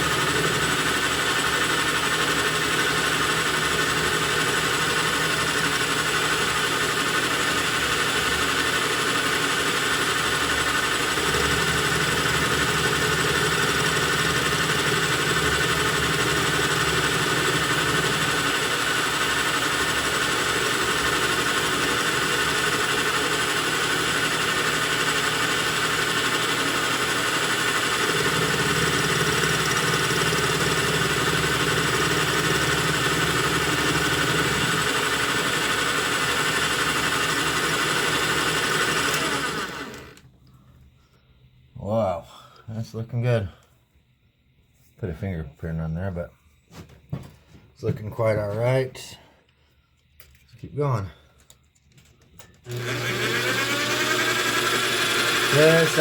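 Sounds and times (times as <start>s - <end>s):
lathe whine: 0.0s - 40.3s, 52.4s - 56.0s.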